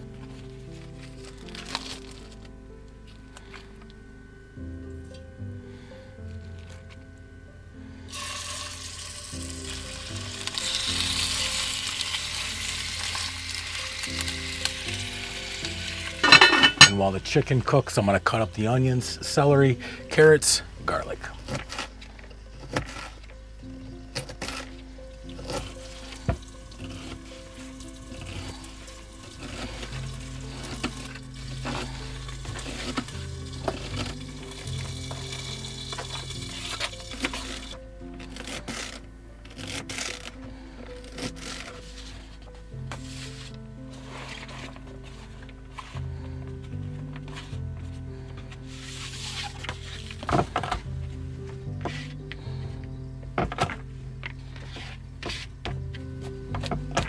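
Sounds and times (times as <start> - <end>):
background music: 0.0 - 57.0
chicken sizzling in hot oil: 8.1 - 17.0, 25.3 - 37.8
knife scraping a plate: 16.2 - 17.0.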